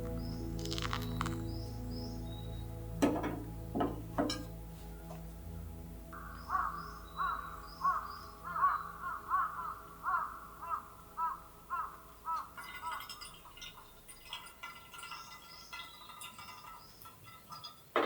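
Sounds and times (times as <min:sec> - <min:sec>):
crow cawing: 0:06.2 - 0:12.6.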